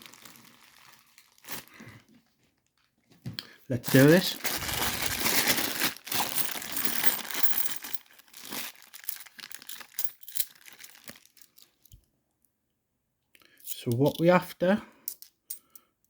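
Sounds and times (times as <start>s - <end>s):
plastic bag tearing and crinkling: 0.0s - 2.0s, 3.8s - 11.5s.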